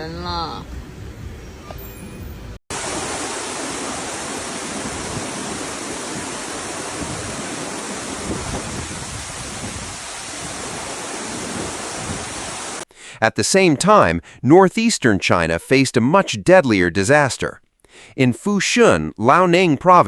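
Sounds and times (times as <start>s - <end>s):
heavy rain: 2.7s - 12.8s
wind rushing: 2.7s - 12.8s.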